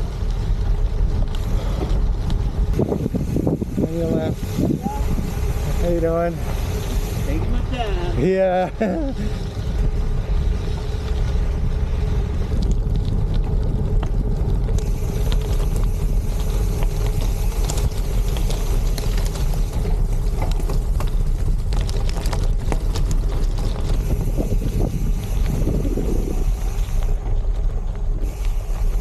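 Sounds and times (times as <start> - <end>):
bike tyres rolling on gravel: 0.0 - 29.0
loose stones clicking and rattling: 0.0 - 29.0
wind buffeting microphone: 0.0 - 29.0.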